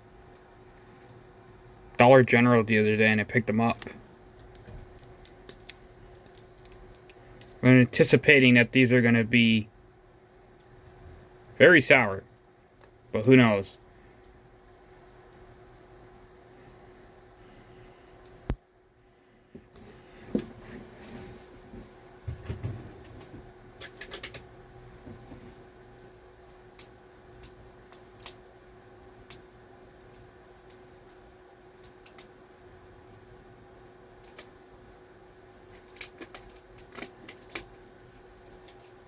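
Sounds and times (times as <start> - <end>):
faint steady hum: 0.0 - 39.0
candy wrappers crinkling: 3.6 - 7.6, 35.6 - 39.0.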